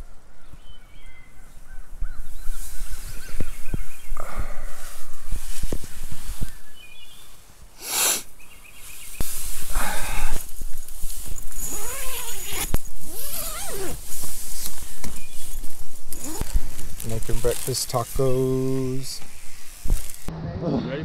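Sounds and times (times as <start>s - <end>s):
breath-like rushing: 4.2s - 5.4s, 9.6s - 10.5s
tent fabric rustling: 4.6s - 20.3s.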